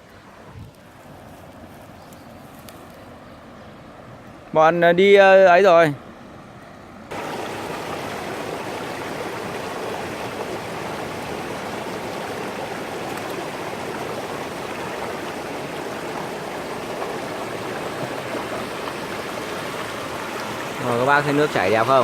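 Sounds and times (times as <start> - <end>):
stream babbling over rocks: 7.1 - 22.0.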